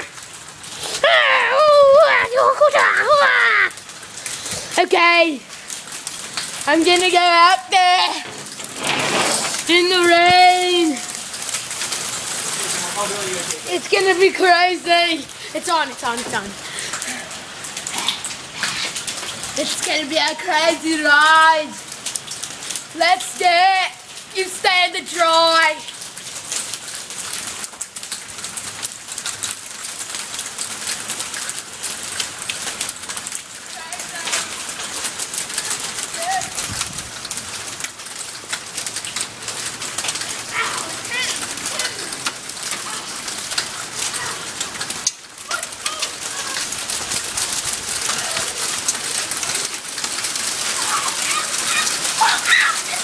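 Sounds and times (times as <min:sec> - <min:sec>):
rain and hail pelting: 0:00.0 - 0:53.0.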